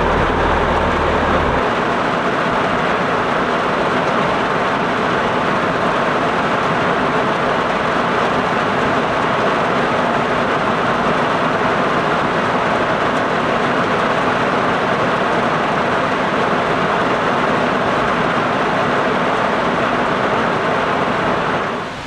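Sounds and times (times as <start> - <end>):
rain falling: 0.0 - 1.6.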